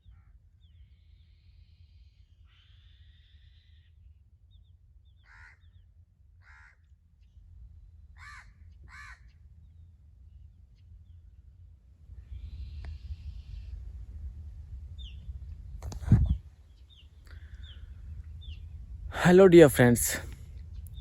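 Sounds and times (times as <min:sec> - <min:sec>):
faint chirps of small birds: 0:00.0 - 0:11.6, 0:12.2 - 0:14.1, 0:14.9 - 0:18.9, 0:20.5 - 0:21.0.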